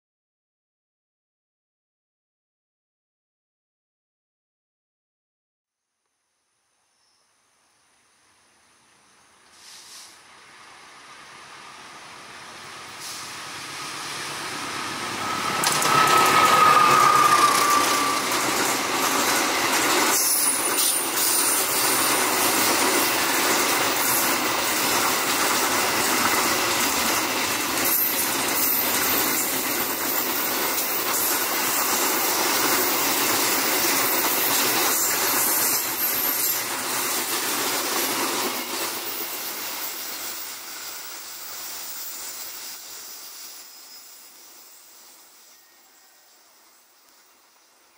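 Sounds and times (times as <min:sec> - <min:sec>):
diesel locomotive passing: 0:10.2 - 0:47.9.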